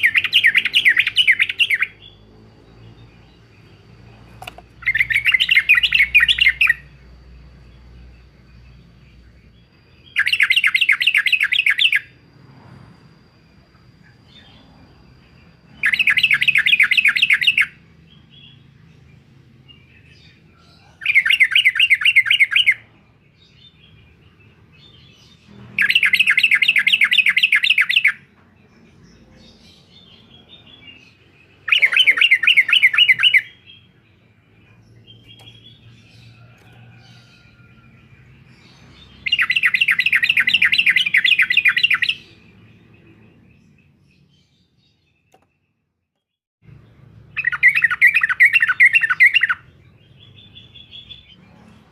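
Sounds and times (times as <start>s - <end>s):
bird chattering call: 31.6s - 33.9s.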